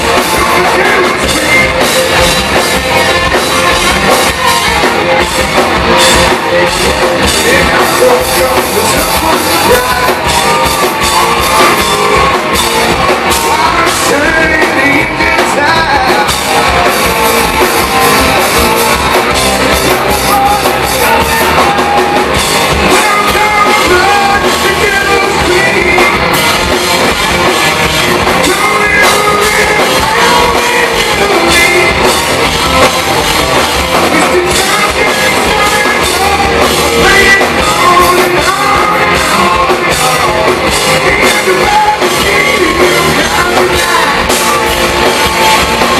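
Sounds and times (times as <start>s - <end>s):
person singing: 0.0s - 33.2s, 33.8s - 45.9s
hard rock band playing: 0.0s - 45.9s.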